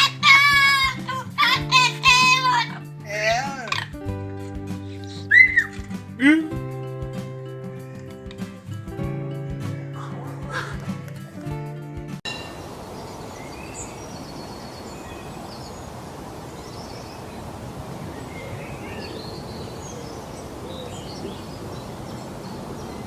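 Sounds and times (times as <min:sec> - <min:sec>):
music: 0:00.0 - 0:12.3
birds chirping and trilling: 0:09.8 - 0:10.9, 0:12.3 - 0:23.0
steady background hiss: 0:12.3 - 0:23.0.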